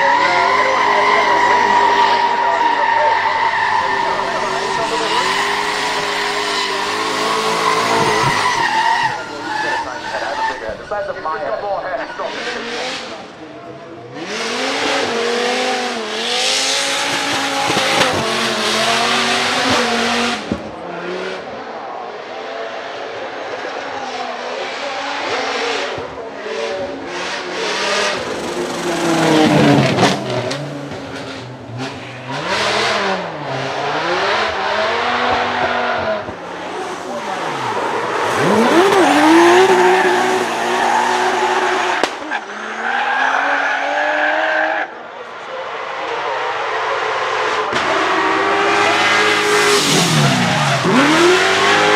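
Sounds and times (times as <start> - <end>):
tyres squealing: 0.0 - 12.6, 37.2 - 43.9
car engine revving: 0.0 - 21.6, 24.2 - 44.3, 46.5 - 51.9.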